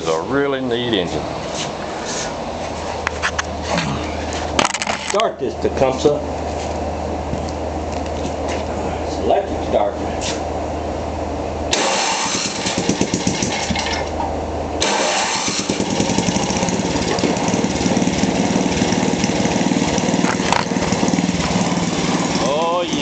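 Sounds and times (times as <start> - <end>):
small engine starting and running: 11.7 - 14.2, 14.8 - 23.0.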